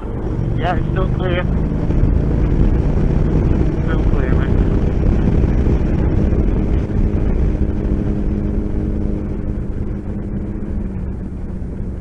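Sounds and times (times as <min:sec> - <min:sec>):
motorcycle engine accelerating: 0:00.0 - 0:12.0
wind rush: 0:00.0 - 0:12.0.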